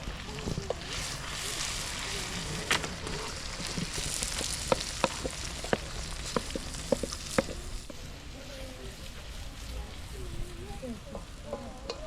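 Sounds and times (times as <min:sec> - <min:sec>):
food sizzling in a pot: 0:00.0 - 0:12.0
utensil tapping against pot: 0:04.4 - 0:07.6.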